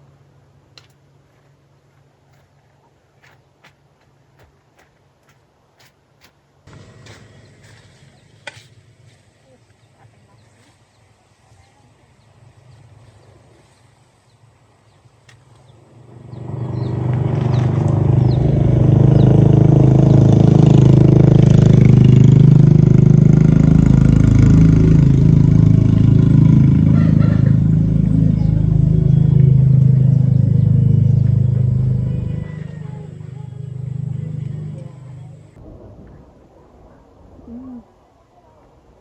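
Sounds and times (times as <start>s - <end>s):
engine running loud: 6.7s - 9.8s, 15.5s - 35.6s.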